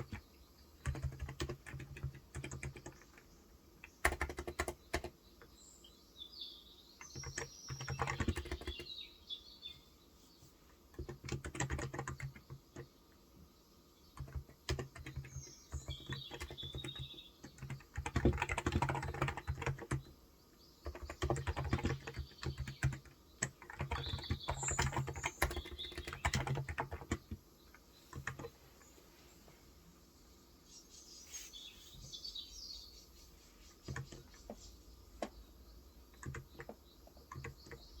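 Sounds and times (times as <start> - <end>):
keyboard typing: 0.0 - 5.2, 7.0 - 8.9, 10.9 - 12.9, 14.2 - 20.1, 20.8 - 27.4, 28.0 - 28.6, 33.8 - 34.6, 36.1 - 38.0
small birds chirping: 0.0 - 38.0.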